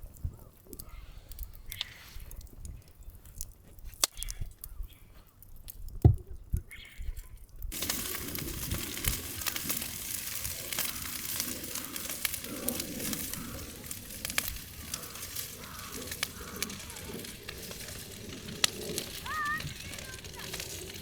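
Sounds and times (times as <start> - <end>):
food sizzling in a hot pan: 7.7 - 15.0.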